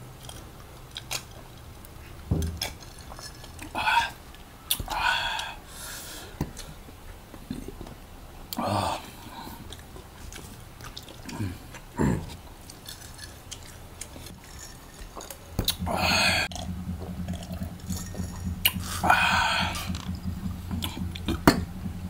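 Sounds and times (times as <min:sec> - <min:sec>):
low steady hum: 0:00.0 - 0:22.0
chewing with lip smacks: 0:00.1 - 0:04.9, 0:09.5 - 0:19.0.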